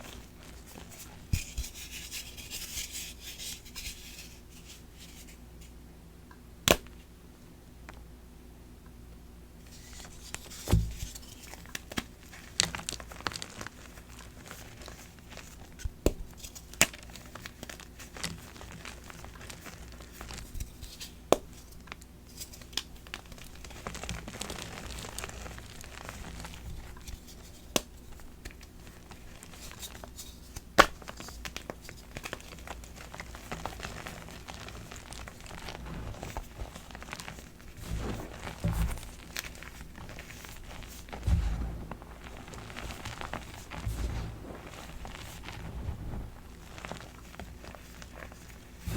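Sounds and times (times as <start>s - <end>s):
dull thuds: 10.7s - 11.1s, 37.7s - 46.8s.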